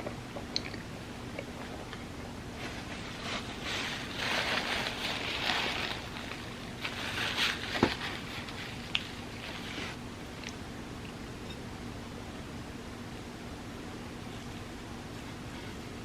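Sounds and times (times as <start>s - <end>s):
soft moist chewing: 0.4s - 2.3s.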